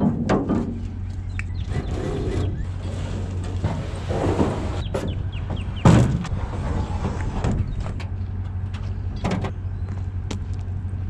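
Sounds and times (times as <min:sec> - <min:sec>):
low hum: 0:00.0 - 0:11.0
loud thump: 0:05.8 - 0:06.3.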